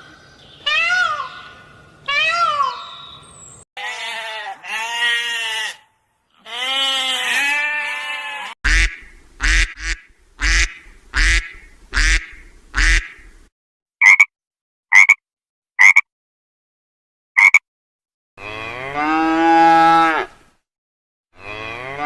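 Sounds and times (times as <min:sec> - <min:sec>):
goat bleating: 0:03.8 - 0:08.6.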